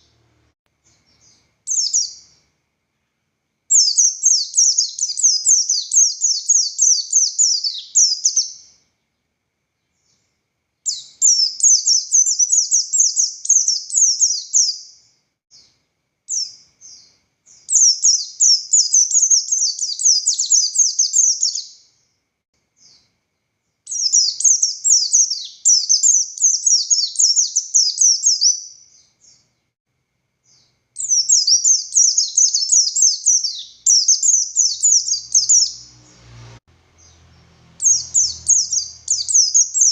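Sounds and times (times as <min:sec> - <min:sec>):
bird singing rapid high notes: 0:31.0 - 0:39.9.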